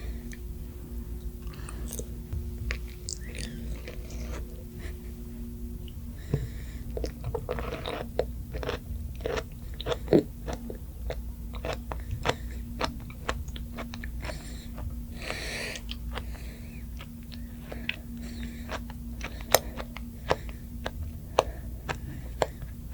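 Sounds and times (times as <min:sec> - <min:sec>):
person chewing wet food: 0:01.4 - 0:05.2, 0:05.8 - 0:22.9.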